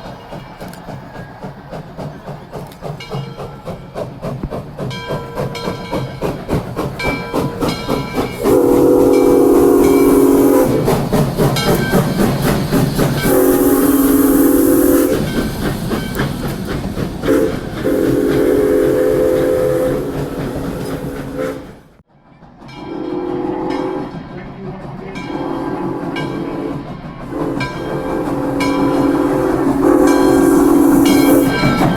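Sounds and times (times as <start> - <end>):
locomotive bell ringing: 7.0 - 10.5, 27.5 - 31.9
train whistle blasts: 8.4 - 11.0, 13.2 - 15.2, 17.3 - 21.8, 22.8 - 24.2, 25.3 - 31.9.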